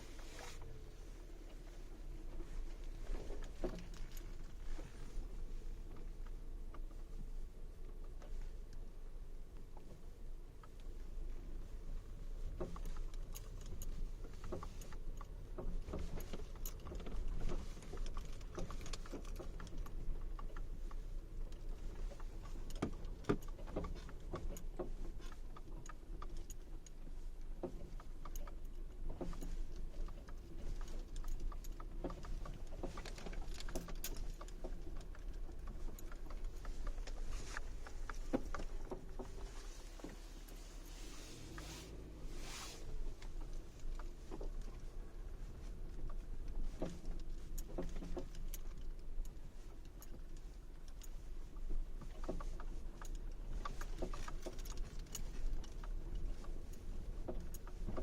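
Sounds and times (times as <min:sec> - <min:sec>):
car knocks and rattles: 0:27.5 - 0:40.6.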